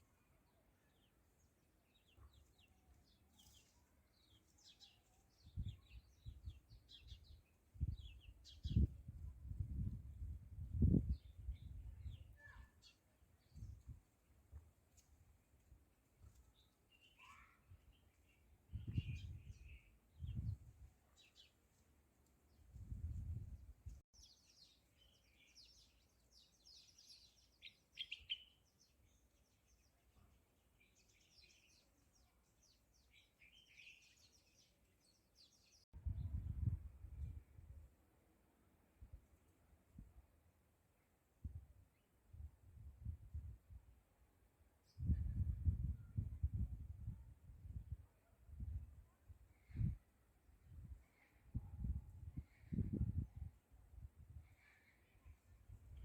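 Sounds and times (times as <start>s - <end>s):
small birds chirping: 0.0s - 9.9s, 10.8s - 14.0s, 16.2s - 35.9s
birds chirping: 24.2s - 29.9s.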